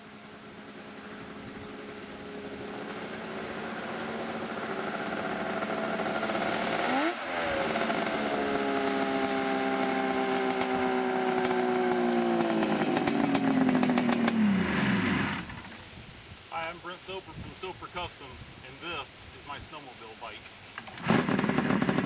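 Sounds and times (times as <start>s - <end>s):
snowmobile engine running: 0.6s - 15.5s, 21.0s - 22.0s
rattling clatter: 20.9s - 22.0s.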